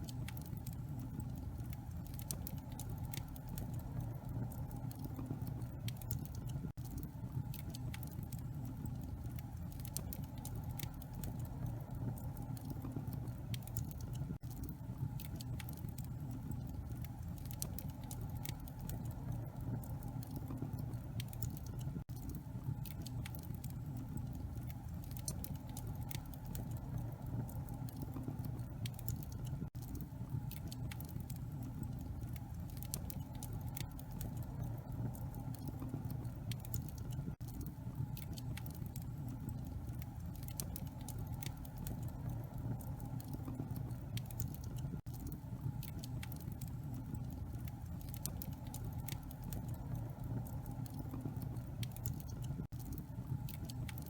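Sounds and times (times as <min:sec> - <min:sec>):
fire crackling and popping: 0:00.0 - 0:54.0
wood fire rumbling: 0:00.0 - 0:54.0.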